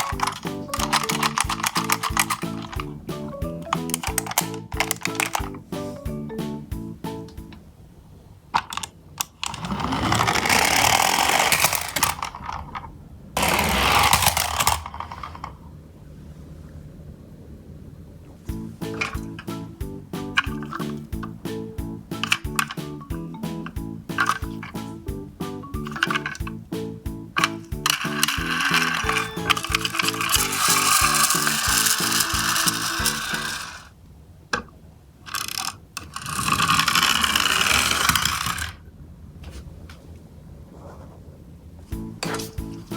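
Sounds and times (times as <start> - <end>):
toy truck set down clicks: 0.0 - 2.8, 3.7 - 5.5, 22.2 - 22.8, 24.2 - 24.8, 25.9 - 26.4, 27.4 - 33.8
toy truck wheels rattling: 0.0 - 5.6, 8.6 - 15.6, 18.8 - 25.1, 25.7 - 26.6, 27.4 - 33.9, 35.3 - 38.8, 42.2 - 42.9
background music with beat: 0.0 - 7.6, 18.5 - 33.5, 42.0 - 42.9.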